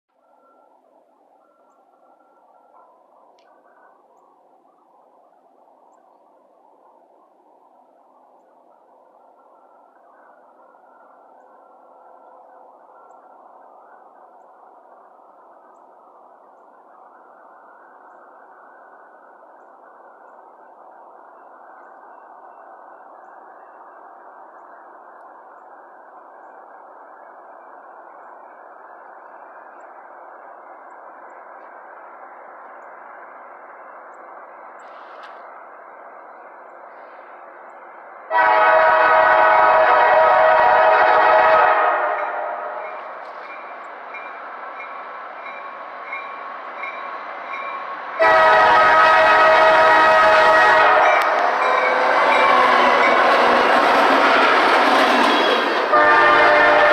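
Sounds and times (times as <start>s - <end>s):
freight train rumble: 0.1s - 56.9s
locomotive air horn chord: 38.3s - 42.9s, 48.2s - 56.9s.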